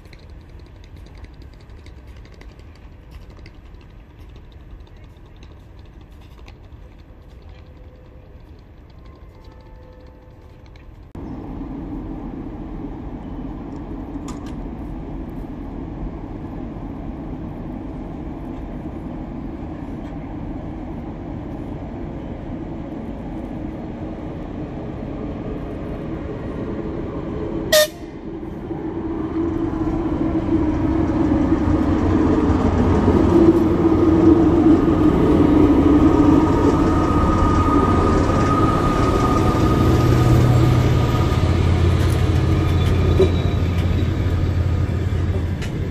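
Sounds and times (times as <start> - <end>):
train rumbling: 0.0 - 45.9
train horn toot: 27.7 - 28.2.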